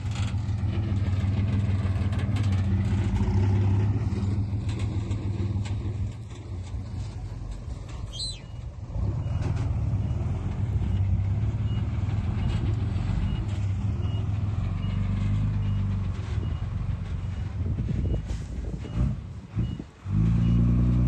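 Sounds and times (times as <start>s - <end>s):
heavy machine engine under load: 0.0s - 21.0s
faint reversing alarm beeps: 19.6s - 20.8s.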